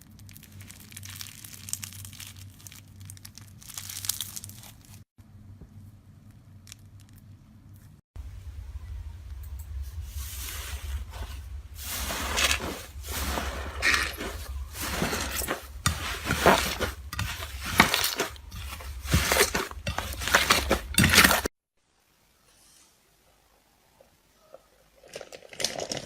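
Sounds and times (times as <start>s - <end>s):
slime crackly squishes: 0.0s - 5.0s
low steady hum: 5.2s - 22.4s.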